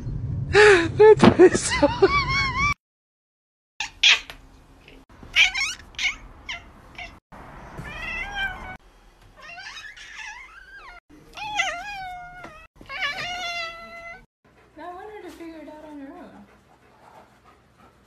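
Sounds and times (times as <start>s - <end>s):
cats meowing: 5.3s - 7.2s, 7.8s - 8.8s, 9.4s - 14.3s.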